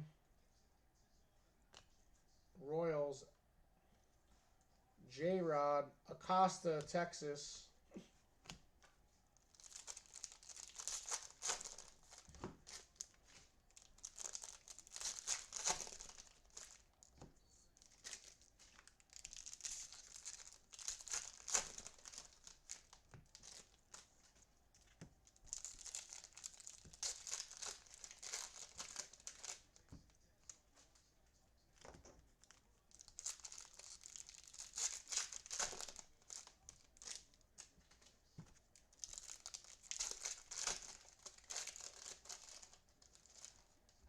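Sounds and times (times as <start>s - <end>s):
foil wrappers tearing and crinkling: 9.5s - 17.1s, 17.7s - 24.1s, 25.2s - 29.9s, 32.4s - 37.4s, 38.8s - 43.6s.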